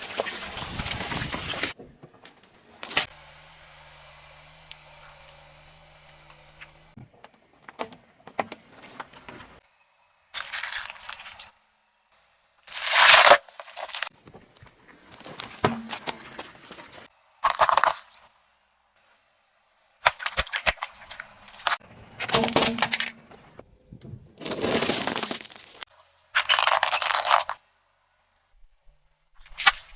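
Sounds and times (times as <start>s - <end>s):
objects crushed under car tyres: 12.7s - 14.1s, 20.0s - 23.6s, 24.3s - 27.6s.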